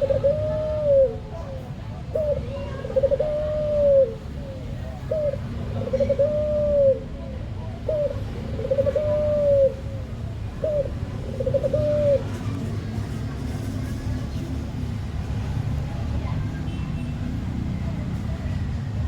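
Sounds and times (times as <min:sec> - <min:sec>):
dove cooing: 0:00.0 - 0:12.6.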